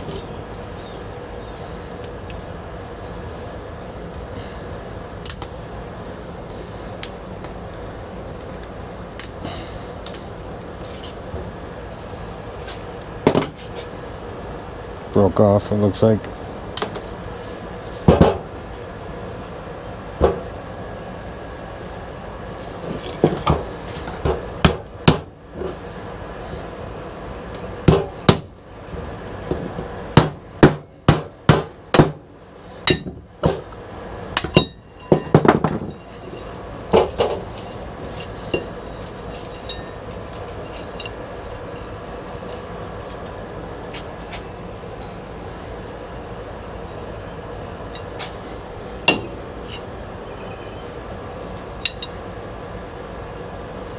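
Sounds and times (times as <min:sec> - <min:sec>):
hammer striking metal: 0:32.9 - 0:33.2, 0:34.4 - 0:35.8, 0:49.1 - 0:49.8, 0:51.8 - 0:52.1.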